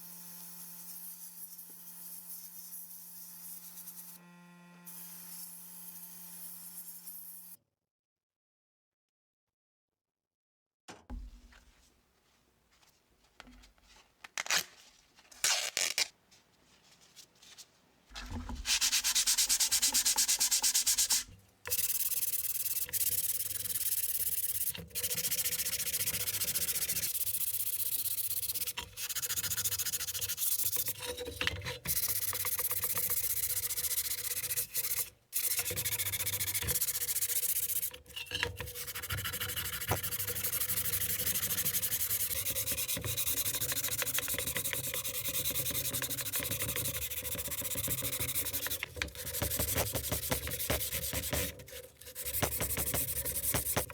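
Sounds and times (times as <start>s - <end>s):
sanding metal box: 18.4s - 53.9s.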